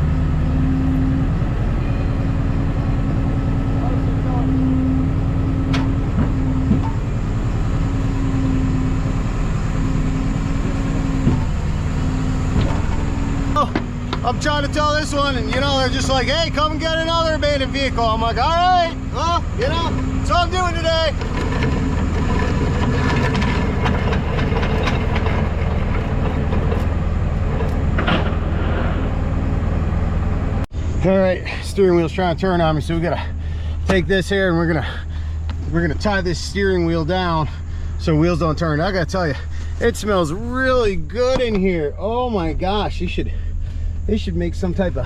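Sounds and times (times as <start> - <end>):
truck engine droning: 0.0 - 45.0
metallic knocks and clicks: 21.2 - 28.4.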